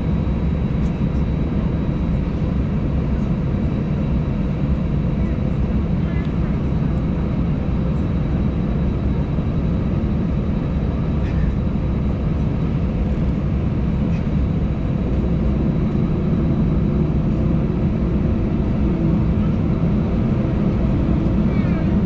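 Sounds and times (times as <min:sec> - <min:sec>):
jet engines idling: 0:00.0 - 0:22.0
cabin air system running: 0:07.9 - 0:22.0.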